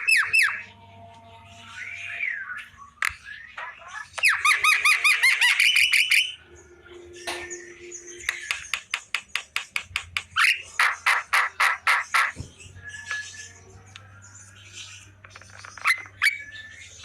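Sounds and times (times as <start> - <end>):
bird calling looping notes: 0.0 - 0.8, 1.6 - 12.3.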